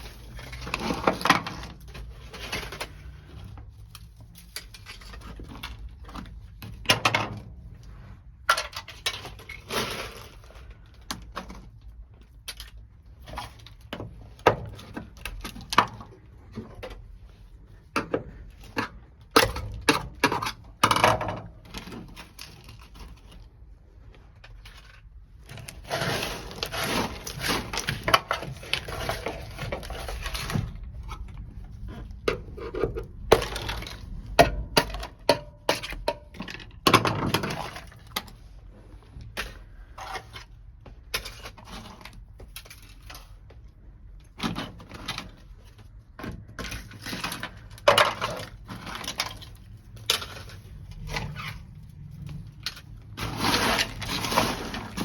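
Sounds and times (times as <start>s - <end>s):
scraping and rattling: 13.0s - 43.4s, 44.4s - 55.0s
loose pieces clattering: 44.4s - 51.6s.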